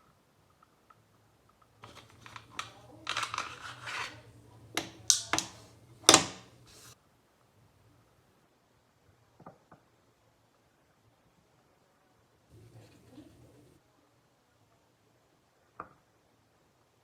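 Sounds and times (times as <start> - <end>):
air pistol clicks and rattles: 1.9 - 4.1, 4.8 - 6.5
faint low hum: 11.9 - 14.2.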